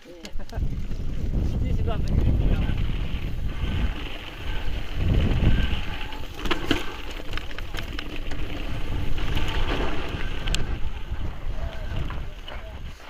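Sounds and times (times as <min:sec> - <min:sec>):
wind buffeting microphone: 0:00.3 - 0:13.0
tyres rumbling on stones: 0:00.6 - 0:13.0
bike clicks and knocks: 0:05.7 - 0:12.5.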